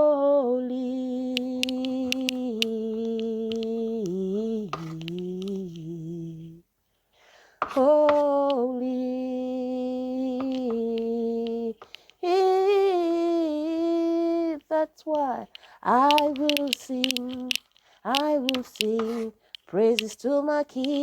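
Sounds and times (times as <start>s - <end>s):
person singing unaccompanied: 0.0s - 6.8s, 7.6s - 21.0s.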